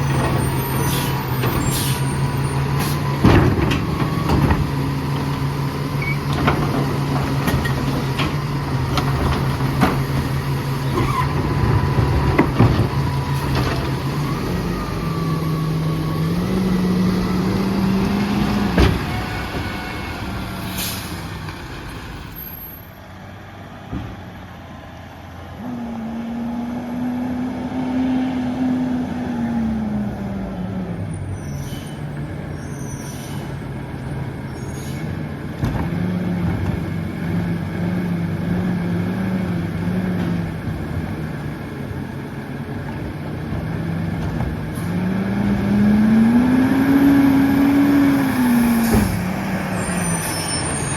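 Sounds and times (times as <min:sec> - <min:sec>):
diesel truck engine revving: 0:00.0 - 0:50.9
knocks and clanks: 0:02.6 - 0:14.2, 0:18.2 - 0:19.8, 0:35.6 - 0:37.0.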